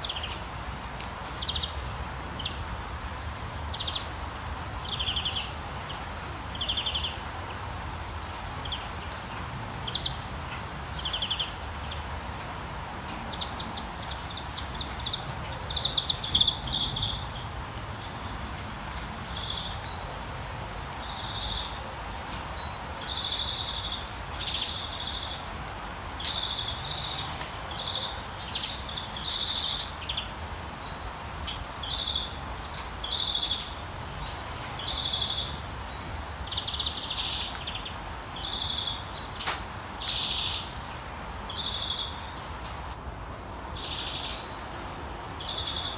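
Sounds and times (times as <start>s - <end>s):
rain hiss: 0.0s - 45.9s
small birds chirping: 13.2s - 20.2s, 21.0s - 30.4s, 31.4s - 45.9s.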